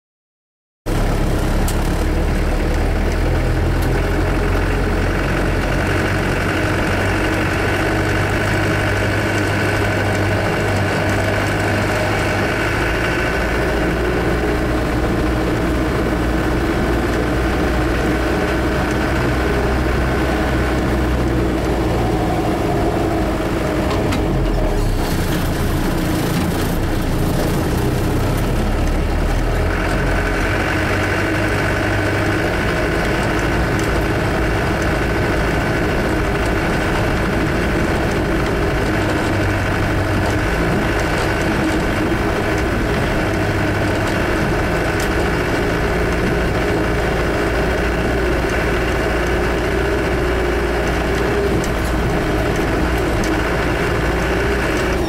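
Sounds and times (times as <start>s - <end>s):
diesel engine drone: 0.9s - 55.0s
steady high whine: 16.0s - 24.8s.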